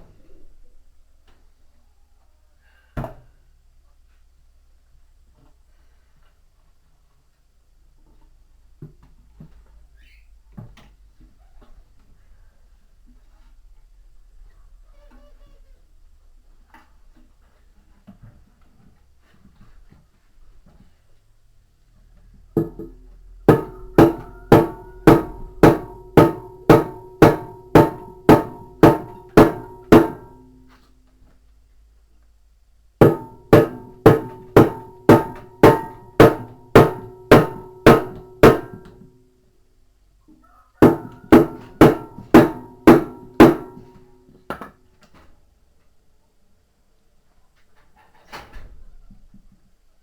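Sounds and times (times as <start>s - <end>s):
hammer striking metal: 22.6s - 30.6s, 33.0s - 39.1s, 40.8s - 44.0s.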